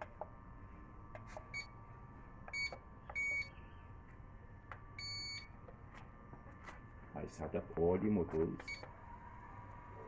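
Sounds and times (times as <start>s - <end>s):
short electronic beeps: 2.5s - 3.6s.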